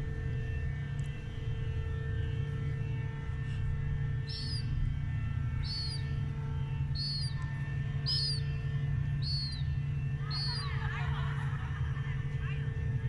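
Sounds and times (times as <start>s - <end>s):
steady low hum: 0.0s - 13.0s
high bird chirp: 4.2s - 4.7s, 5.6s - 10.9s.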